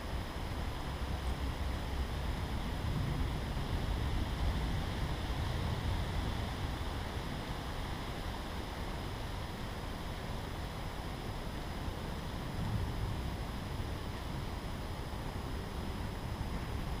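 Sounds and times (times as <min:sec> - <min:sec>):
wind rushing in forest: 0:00.0 - 0:17.0
wind buffeting microphone: 0:02.3 - 0:07.5.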